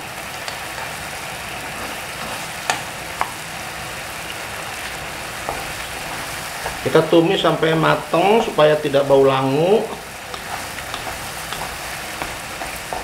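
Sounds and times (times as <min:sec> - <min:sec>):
paste sizzling in oil: 0:00.0 - 0:13.0
utensil tapping a pan: 0:04.8 - 0:08.6, 0:09.8 - 0:13.0.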